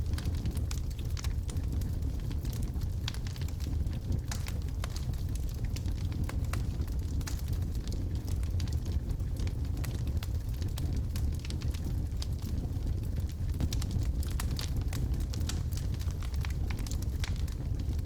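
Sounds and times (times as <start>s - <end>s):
fire crackling and popping: 0.0s - 18.0s
low fire rumble: 0.0s - 18.0s.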